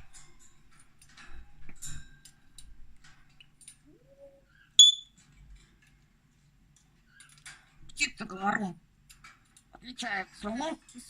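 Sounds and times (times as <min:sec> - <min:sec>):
parrot high-pitched chirp: 0:04.2 - 0:05.2
parrot clicks and scratchy sounds: 0:05.1 - 0:08.0.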